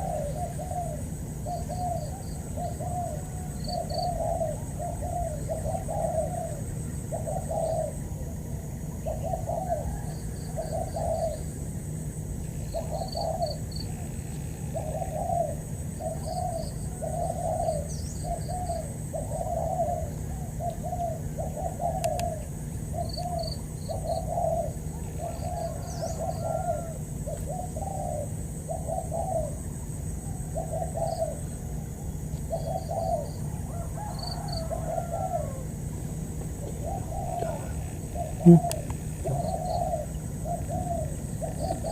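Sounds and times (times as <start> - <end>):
high-pitched insect-like hiss: 0.0 - 20.3
doves cooing: 0.0 - 41.9
faint bird chirps: 36.6 - 41.9.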